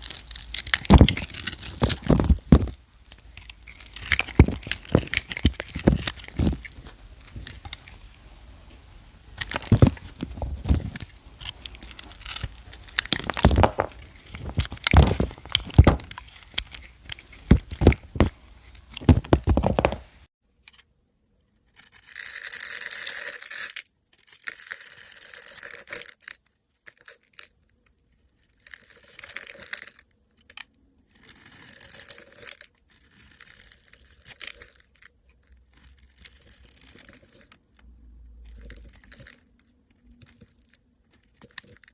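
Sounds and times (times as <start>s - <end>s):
crisp crunching and cracking: 0.0s - 20.2s, 21.8s - 41.9s
scraping or tearing strokes: 0.0s - 20.3s.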